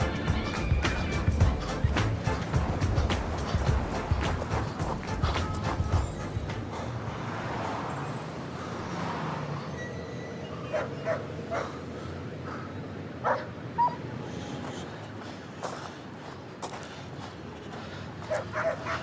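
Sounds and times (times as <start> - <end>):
steady background noise: 0.0 - 19.0
dog whimpering and yipping: 13.8 - 14.0.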